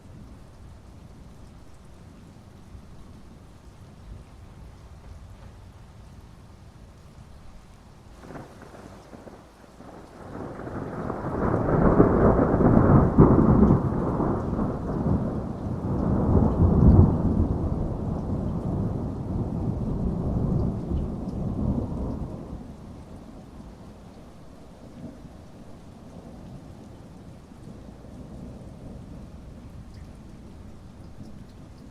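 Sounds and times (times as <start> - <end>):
heavy rain falling: 0.0 - 31.9
rolling thunder: 8.2 - 24.0.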